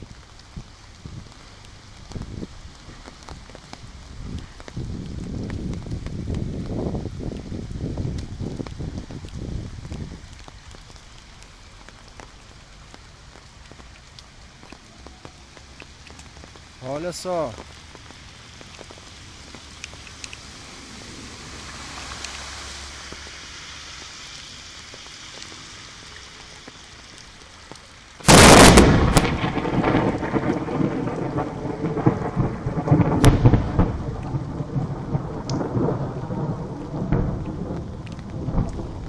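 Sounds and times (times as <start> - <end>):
heavy rain falling: 0.0 - 39.0
thunderclap and rumble: 2.0 - 11.0, 28.2 - 39.0.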